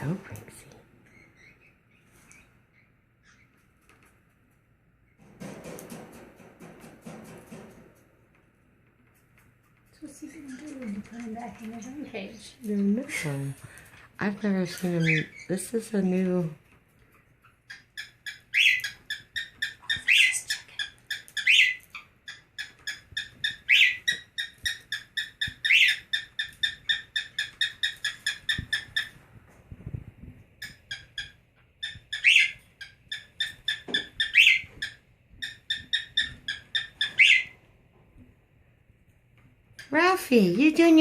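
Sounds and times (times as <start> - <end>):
bird clucking chirps: 17.4 - 29.2, 30.6 - 37.6.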